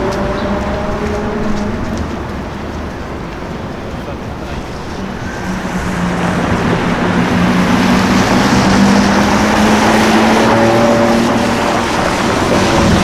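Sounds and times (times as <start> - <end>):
road and traffic noise: 0.0 - 13.0
car engine running: 3.6 - 13.0.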